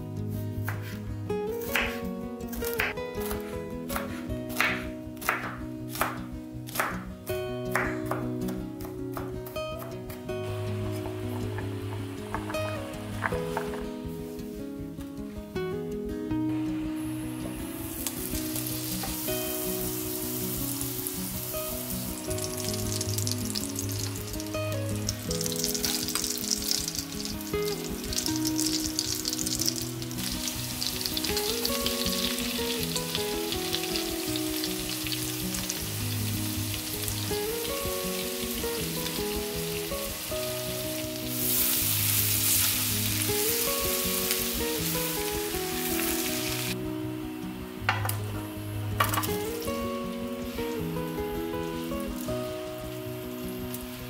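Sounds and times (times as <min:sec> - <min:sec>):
soft melodic background music: 0:00.0 - 0:54.0
butter and garlic sizzling in pan: 0:17.3 - 0:46.8, 0:49.0 - 0:54.0.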